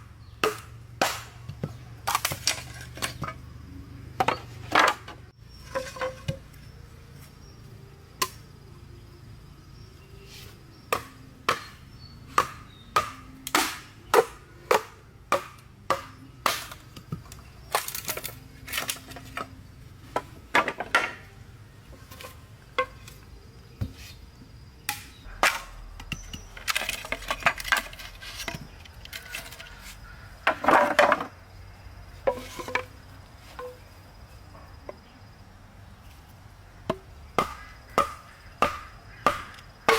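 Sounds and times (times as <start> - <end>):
wood being chopped: 0.4 - 3.4, 10.9 - 19.4, 24.9 - 29.5, 36.9 - 39.9
scraping: 4.2 - 6.6.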